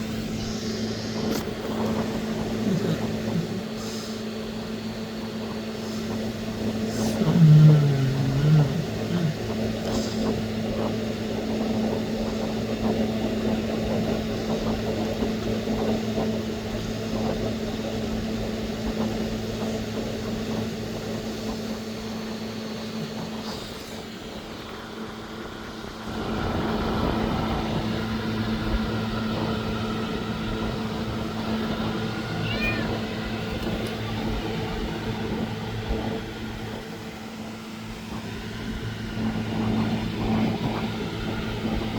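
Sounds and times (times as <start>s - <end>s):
low mechanical hum: 0.0s - 41.9s
kitten meowing: 32.4s - 33.0s.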